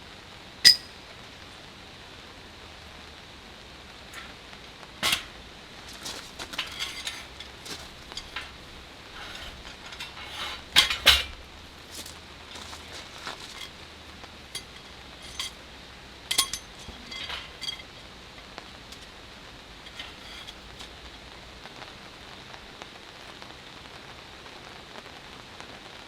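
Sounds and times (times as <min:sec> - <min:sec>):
cookware clinking and knocking: 0:00.7 - 0:00.9, 0:14.6 - 0:15.6, 0:16.3 - 0:18.0.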